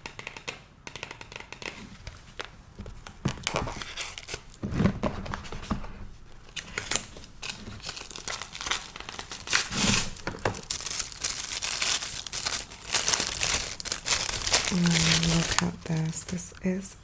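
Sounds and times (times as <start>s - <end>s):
packaging crinkling and tearing: 3.2s - 16.8s.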